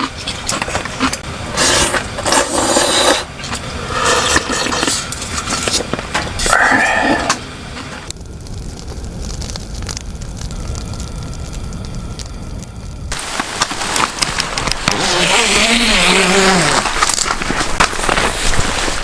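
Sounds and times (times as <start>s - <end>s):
low steady rumble: 0.0s - 15.1s
heavy rain pattering: 0.3s - 19.0s.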